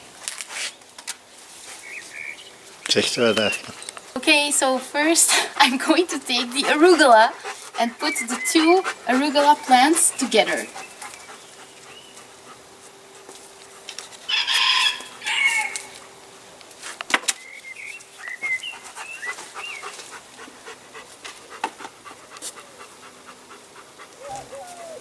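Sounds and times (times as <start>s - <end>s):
loud bird calls: 1.8s - 12.5s, 14.3s - 16.1s, 17.4s - 20.3s.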